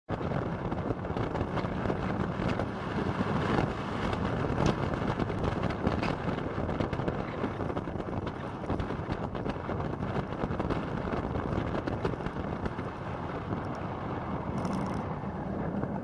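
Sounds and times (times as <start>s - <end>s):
wind rush on microphone: 0.1s - 16.0s
motorcycle engine running: 14.4s - 16.0s.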